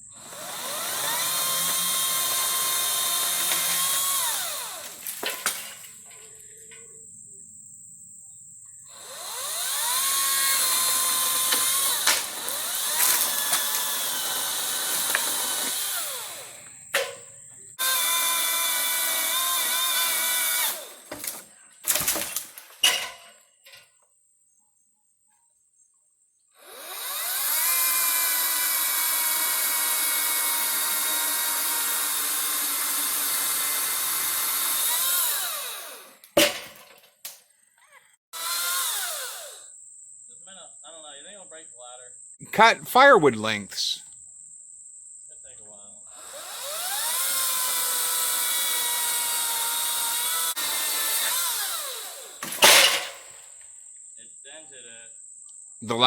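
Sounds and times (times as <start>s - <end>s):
electric chainsaw motor whining: 0.0s - 6.2s, 8.9s - 17.2s, 17.8s - 21.5s, 26.6s - 36.3s, 38.3s - 39.8s, 46.1s - 53.6s.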